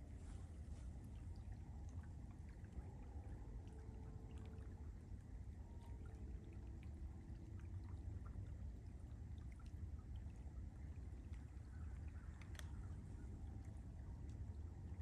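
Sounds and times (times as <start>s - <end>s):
water trickling and pouring: 0.0s - 15.0s
small clicks: 12.2s - 13.0s.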